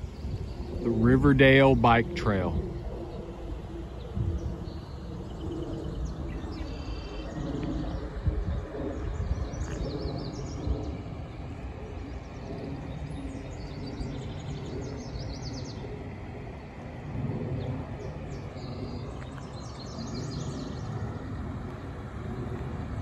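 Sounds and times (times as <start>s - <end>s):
low outdoor rumble: 0.0s - 23.0s
small birds chirping: 4.0s - 16.1s, 17.6s - 21.3s.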